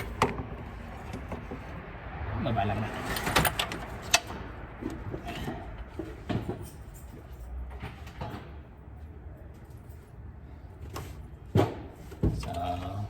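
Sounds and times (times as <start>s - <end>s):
metal parts knocking and clunking: 0.0s - 1.7s, 3.0s - 8.6s.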